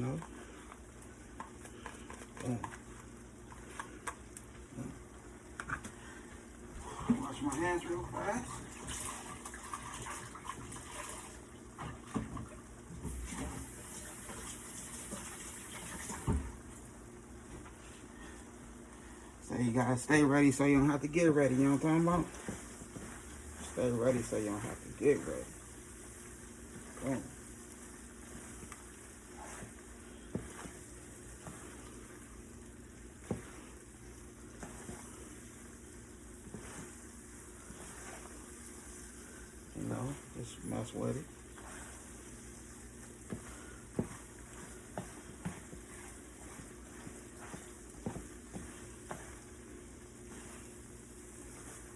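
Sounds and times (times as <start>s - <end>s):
tap running over washing hands: 8.5s - 16.8s, 21.5s - 39.2s, 41.4s - 51.9s
food sizzling in a pan: 13.0s - 16.5s, 20.2s - 51.9s.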